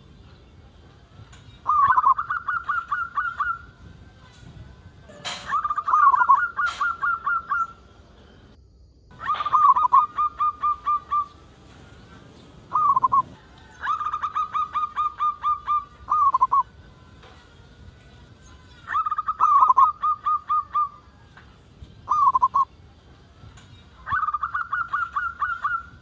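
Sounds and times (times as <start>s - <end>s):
zebra dove cooing: 1.6s - 3.7s, 5.1s - 7.8s, 9.1s - 11.4s, 12.7s - 16.7s, 18.9s - 21.0s, 22.1s - 22.7s, 24.0s - 26.0s.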